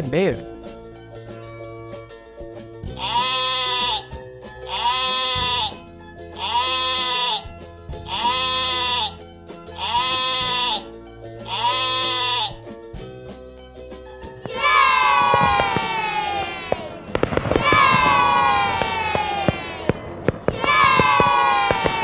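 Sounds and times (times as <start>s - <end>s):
light background music: 0.0s - 14.6s
sheep bleating: 3.0s - 5.8s, 6.4s - 9.2s, 9.8s - 10.8s, 11.5s - 12.6s, 14.5s - 22.0s.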